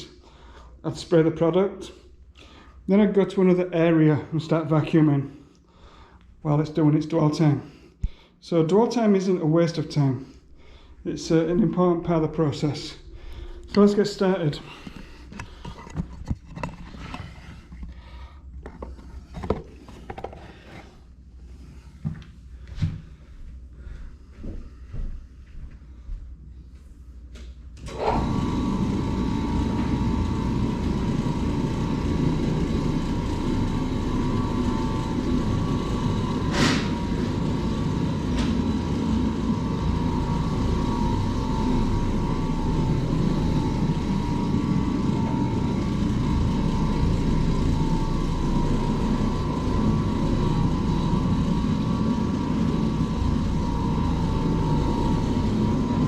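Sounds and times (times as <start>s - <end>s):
carpet-cleaning machine running: 8.8s - 22.2s, 27.8s - 56.0s.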